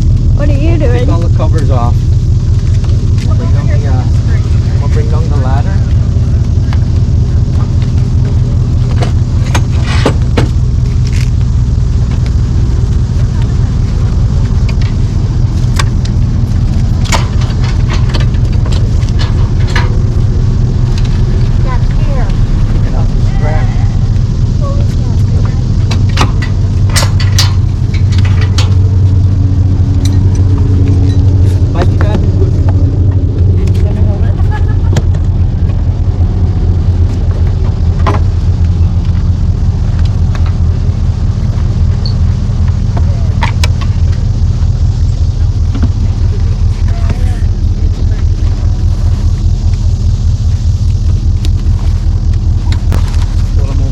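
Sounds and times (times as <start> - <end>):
engine idling: 0.0 - 53.9
metal gear clicking and clanking: 26.1 - 29.2, 29.8 - 32.5.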